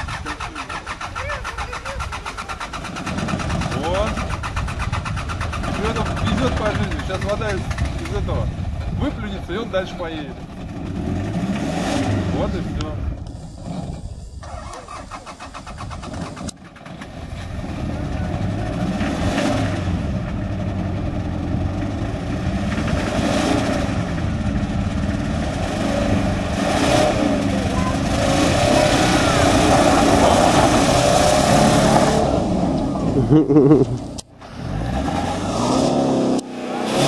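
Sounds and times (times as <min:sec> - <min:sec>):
engine running and revving unevenly: 0:10.6 - 0:13.0, 0:16.9 - 0:37.0.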